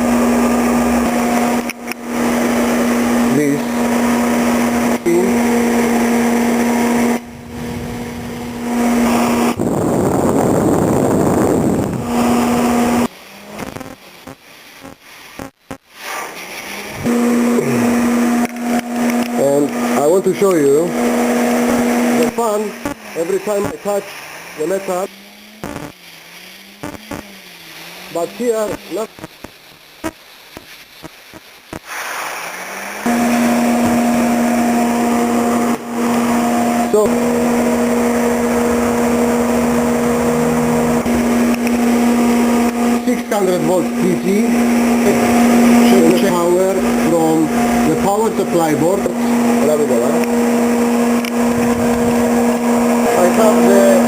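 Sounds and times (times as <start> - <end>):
cooling fan humming: 0.0 - 15.8, 16.6 - 31.9, 32.5 - 54.0
loud rushing noise: 0.0 - 29.3, 31.6 - 54.0
sharp clicks: 25.6 - 26.0, 26.8 - 27.3.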